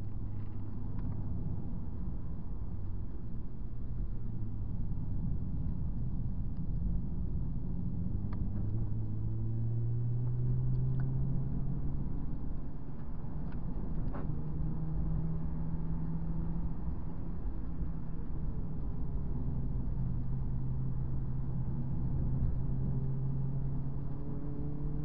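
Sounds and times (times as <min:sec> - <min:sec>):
tyre and road noise: 0:00.0 - 0:25.0
car engine accelerating: 0:06.9 - 0:25.0.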